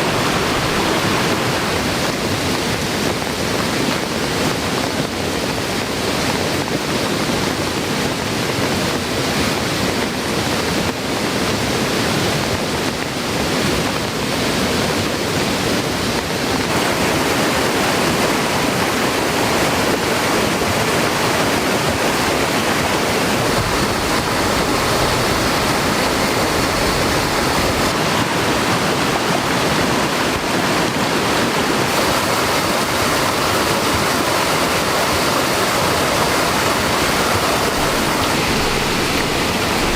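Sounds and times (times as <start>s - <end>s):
heavy rain falling: 0.0s - 39.9s
rushing mountain stream: 0.0s - 39.9s.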